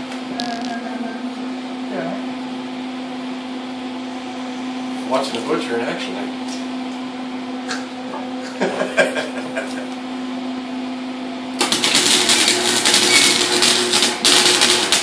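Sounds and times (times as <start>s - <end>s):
steady hum: 0.0s - 15.0s
welding arc crackling: 0.4s - 1.0s, 11.6s - 15.0s.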